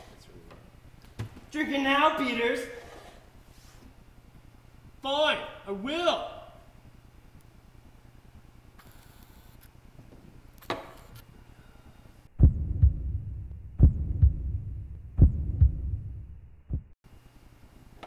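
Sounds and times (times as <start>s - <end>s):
heartbeat thumps: 12.4s - 17.0s.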